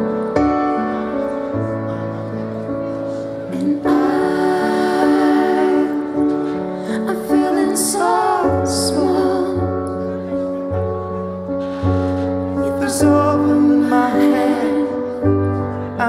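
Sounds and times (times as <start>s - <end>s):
piano chords: 0.0s - 16.0s
woman singing with vibrato: 3.5s - 6.3s, 6.9s - 9.9s.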